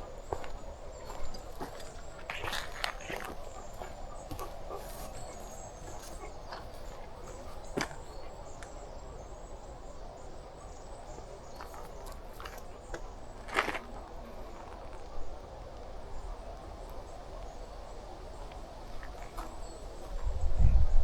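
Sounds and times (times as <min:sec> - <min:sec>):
footsteps crunching: 0:00.0 - 0:08.7, 0:11.5 - 0:15.1
woodland ambience: 0:00.0 - 0:21.0.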